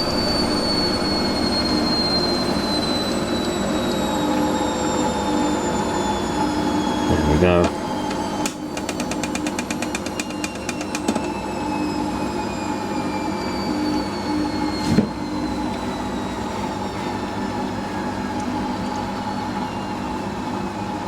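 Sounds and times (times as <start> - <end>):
washing machine spinning: 0.0 - 21.0
rapid ticking: 8.7 - 11.2.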